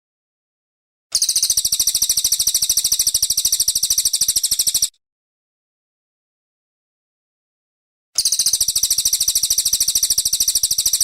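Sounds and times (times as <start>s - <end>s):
bird singing high trill: 1.2s - 4.9s, 8.2s - 11.0s.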